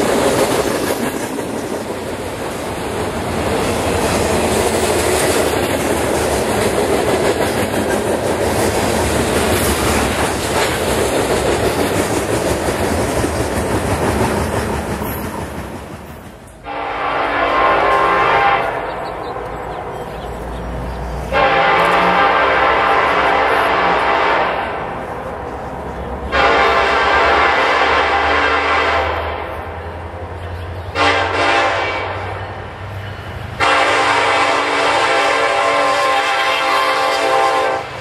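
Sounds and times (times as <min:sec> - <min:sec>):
freight train rumble and wheel clatter: 0:00.0 - 0:38.0
locomotive air horn blast: 0:16.6 - 0:19.0, 0:21.3 - 0:25.0, 0:26.3 - 0:29.6, 0:30.9 - 0:32.4, 0:33.6 - 0:38.0.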